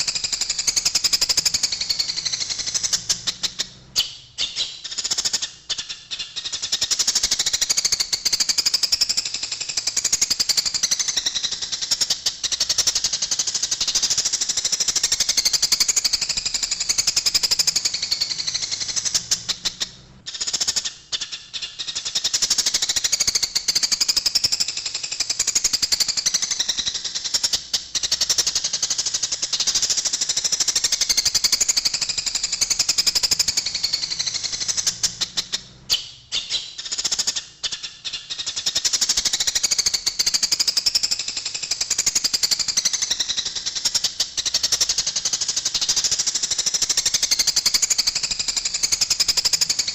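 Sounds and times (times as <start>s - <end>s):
sparrows chattering: 0.0s - 9.2s, 26.4s - 41.1s.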